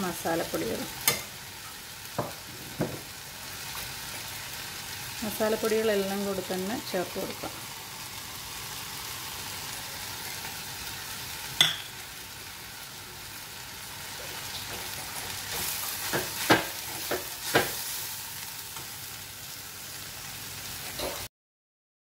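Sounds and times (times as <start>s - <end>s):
onions sizzling in hot oil: 0.0s - 21.3s
spoon clinking and scraping pan: 11.6s - 12.0s.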